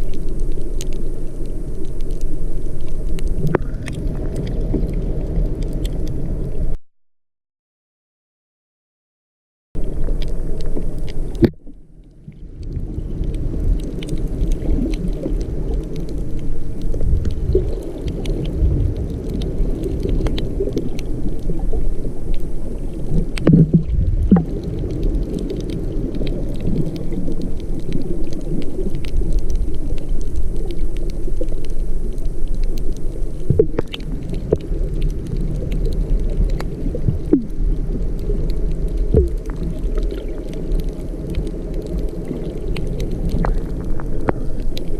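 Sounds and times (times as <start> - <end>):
low rumble of moving water: 0.0 - 6.8, 9.8 - 44.9
faint clicks: 10.0 - 44.9.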